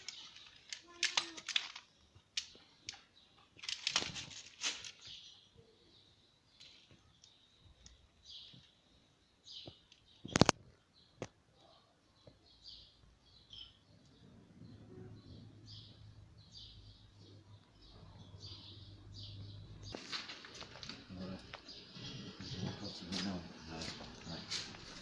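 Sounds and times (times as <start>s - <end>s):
clicks and rustling from hands: 0.0s - 5.1s
faint bird chirps: 5.0s - 20.2s.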